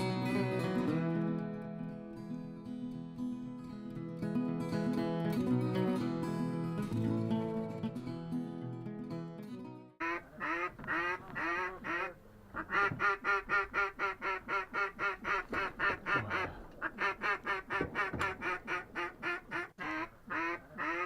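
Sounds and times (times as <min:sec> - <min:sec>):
duck quacking: 0:10.0 - 0:21.0.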